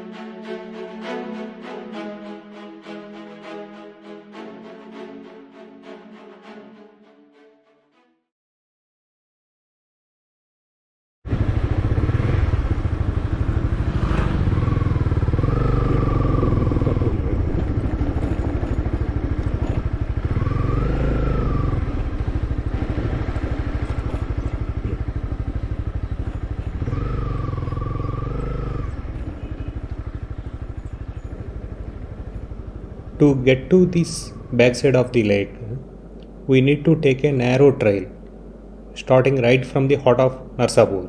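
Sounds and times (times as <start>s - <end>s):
motorcycle engine rumble: 11.3s - 41.0s
road and wind noise: 11.3s - 41.0s.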